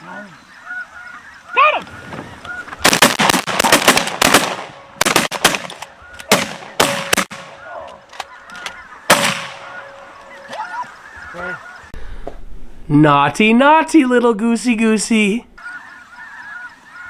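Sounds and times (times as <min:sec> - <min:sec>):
geese calling: 0:00.0 - 0:03.2, 0:04.7 - 0:12.0, 0:15.6 - 0:17.0
shotgun blasts: 0:02.8 - 0:07.6, 0:09.1 - 0:09.6.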